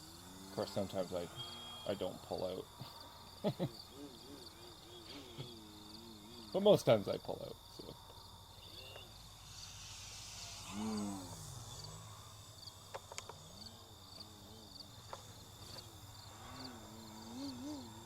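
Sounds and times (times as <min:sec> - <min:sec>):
crickets chirping: 0:00.0 - 0:18.0
model plane motor: 0:08.6 - 0:18.0.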